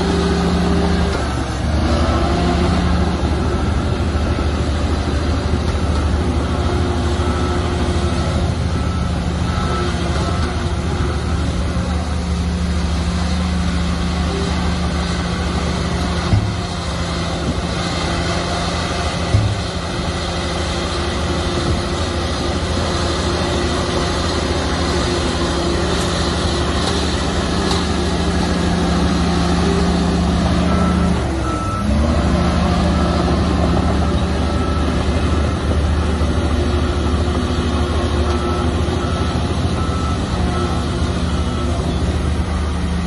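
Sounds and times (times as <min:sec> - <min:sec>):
bulldozer diesel engine running: 0:00.0 - 0:43.0
reversing alarm beeping: 0:00.0 - 0:43.0.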